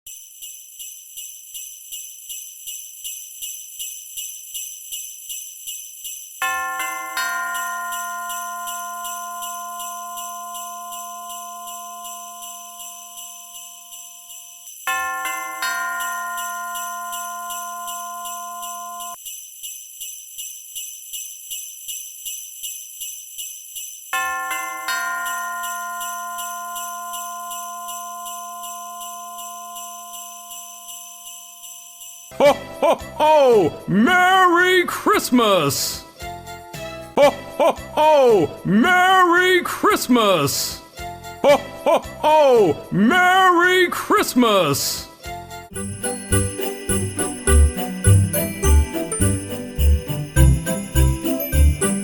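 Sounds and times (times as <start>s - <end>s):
sleigh bells jingling: 0.0s - 52.0s
held musical chord: 36.7s - 37.6s, 45.8s - 52.0s.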